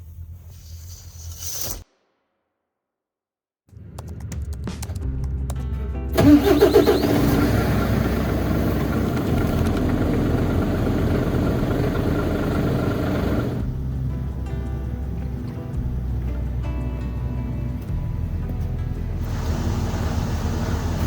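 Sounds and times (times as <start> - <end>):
truck engine starting and running: 6.1 - 21.0.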